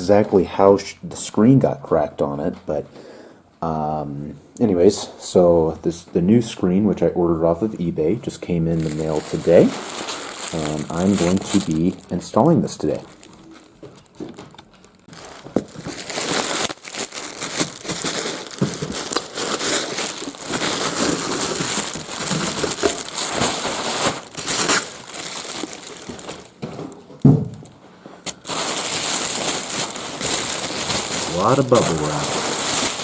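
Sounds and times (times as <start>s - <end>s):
bubble wrap crinkling: 8.2s - 33.0s.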